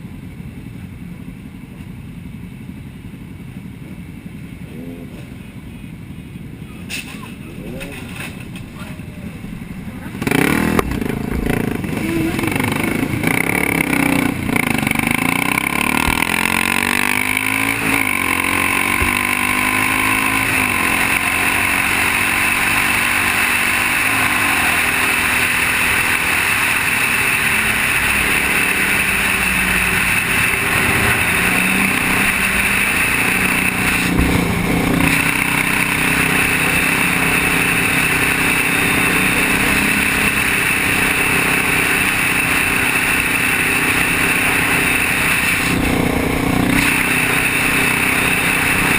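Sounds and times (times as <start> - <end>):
motorcycle engine running: 0.0 - 48.9
steady rushing noise: 7.7 - 48.9.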